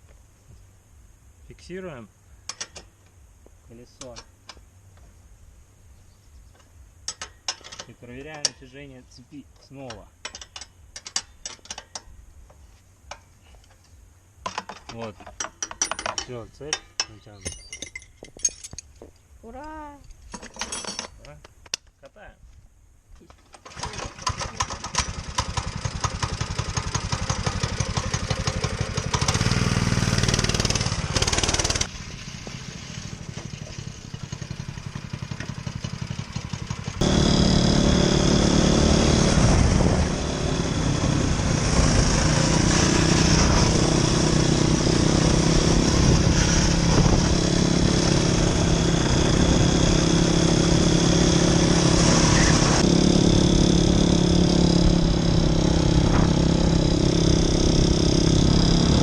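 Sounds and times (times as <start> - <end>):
motorcycle engine revving: 23.7 - 59.0.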